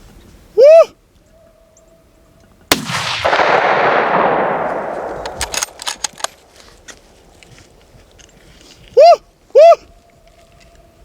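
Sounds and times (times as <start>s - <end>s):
rifle shot with rolling echo: 2.7s - 7.4s
sharp clicks: 4.7s - 7.8s.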